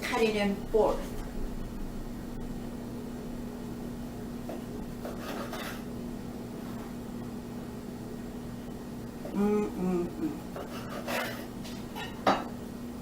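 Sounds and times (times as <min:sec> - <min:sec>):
low hum: 0:00.6 - 0:04.9
knife cutting sandwich: 0:05.0 - 0:05.9, 0:10.5 - 0:11.5.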